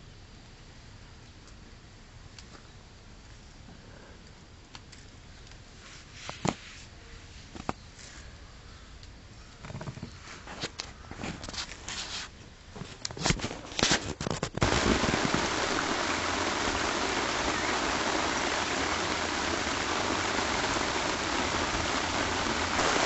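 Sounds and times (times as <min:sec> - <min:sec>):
steady rain falling: 0:14.5 - 0:23.0.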